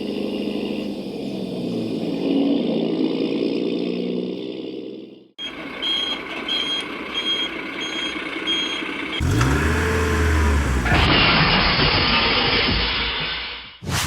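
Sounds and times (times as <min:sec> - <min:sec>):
truck reversing alarm beeping: 0:05.4 - 0:10.9
truck engine running: 0:05.4 - 0:11.1.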